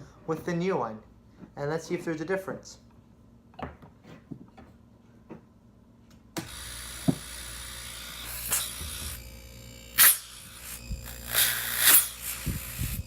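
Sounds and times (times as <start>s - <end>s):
compressor humming and hissing: 6.1s - 13.0s
loud burst of hiss: 10.0s - 13.0s.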